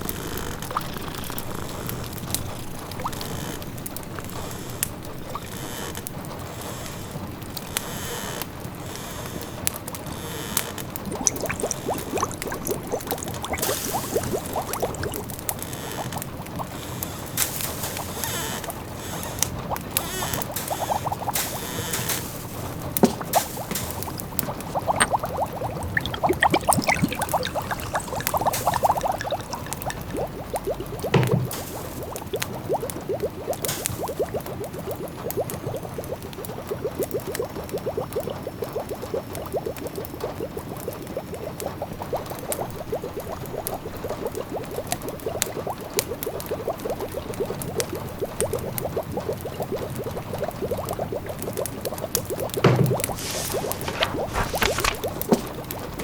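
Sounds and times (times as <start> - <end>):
pot of food bubbling: 10.8 - 56.0
wood fire crackling: 11.0 - 35.1
rain hiss: 11.1 - 32.9, 33.5 - 34.6, 53.0 - 55.4.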